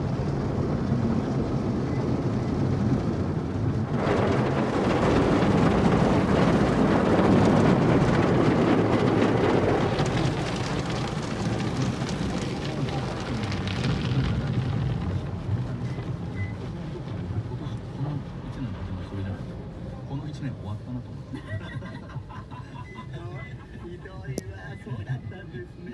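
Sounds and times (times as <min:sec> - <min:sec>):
water spraying on car body: 0:00.2 - 0:19.6.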